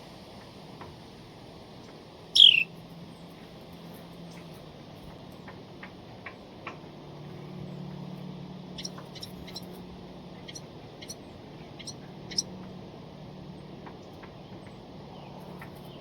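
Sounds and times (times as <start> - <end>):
low steady hum: 0.0 - 5.4
bird chip calls: 2.3 - 2.8, 8.8 - 9.7, 10.4 - 12.5.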